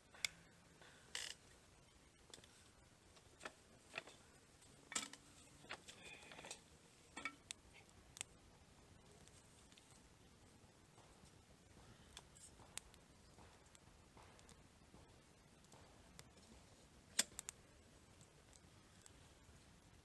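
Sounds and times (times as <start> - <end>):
quiet clicks and light taps: 10.9 - 17.6.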